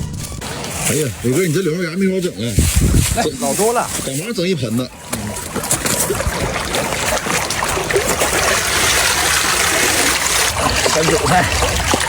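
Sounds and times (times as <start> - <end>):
running water rushing: 0.4 - 12.0.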